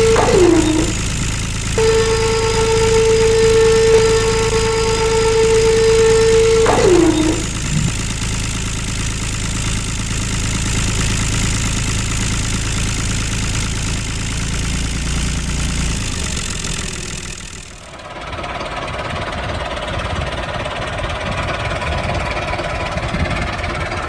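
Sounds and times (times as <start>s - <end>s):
high whine falling in pitch: 0.0s - 8.6s
small model tractor motor running: 0.0s - 18.6s.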